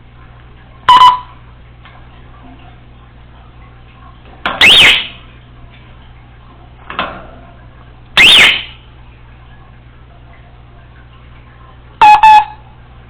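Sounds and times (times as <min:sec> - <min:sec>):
parrot shrill whistles: 0:04.6 - 0:05.1, 0:08.2 - 0:08.7.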